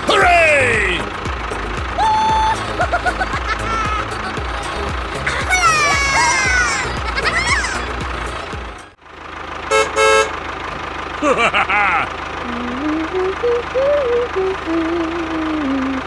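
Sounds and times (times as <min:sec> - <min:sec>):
chirpy cartoon-like sounds: 0:00.0 - 0:08.4, 0:12.0 - 0:16.0
vehicle engine idling: 0:00.0 - 0:16.0
short horn toots: 0:09.7 - 0:10.4
tune of single held notes: 0:12.5 - 0:16.0.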